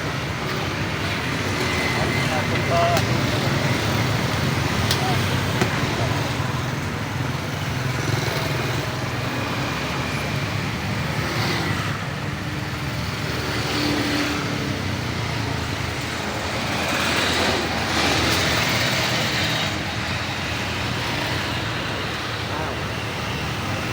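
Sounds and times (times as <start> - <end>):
road traffic: 0.0 - 23.9.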